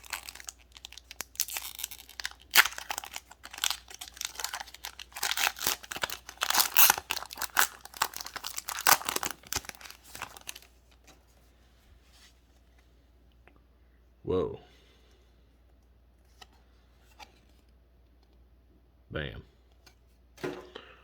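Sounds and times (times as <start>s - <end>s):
foil wrapper crinkling and tearing: 0.0s - 11.1s.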